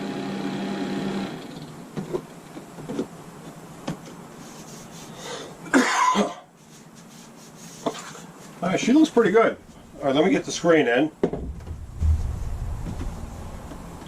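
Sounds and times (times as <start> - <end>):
vent fan motor humming: 8.2 - 14.0.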